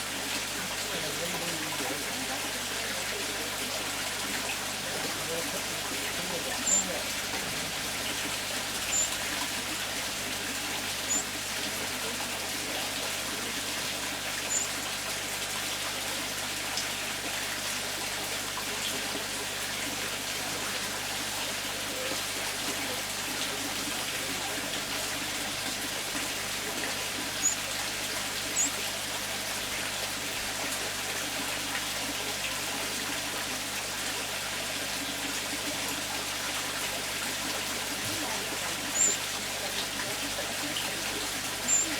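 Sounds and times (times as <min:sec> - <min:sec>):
water trickling in a pond: 0:00.0 - 0:41.9.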